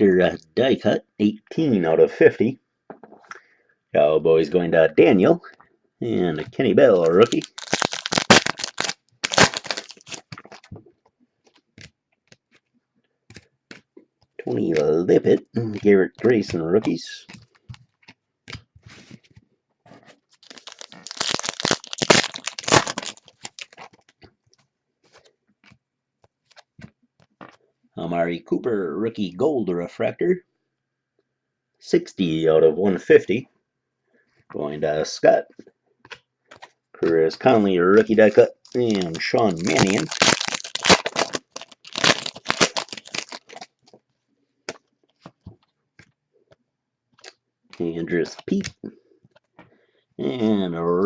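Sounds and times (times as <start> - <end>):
wrapper tearing and crinkling: 7.0 - 10.7, 20.3 - 24.2, 38.1 - 44.0.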